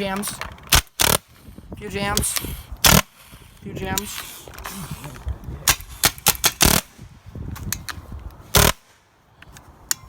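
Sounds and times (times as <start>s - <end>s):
wind noise on microphone: 0.0s - 10.0s.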